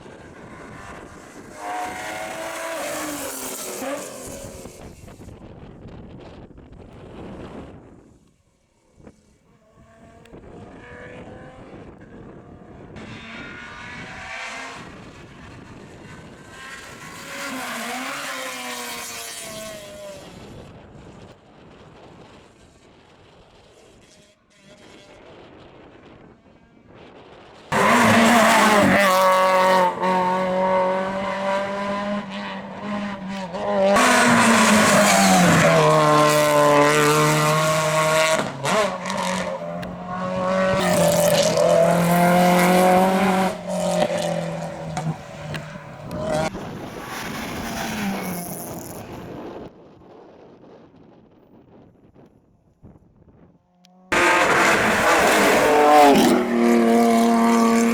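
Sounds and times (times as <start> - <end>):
rally car engine revving: 0.0 - 5.3, 9.1 - 20.5, 27.7 - 49.2, 53.9 - 57.9.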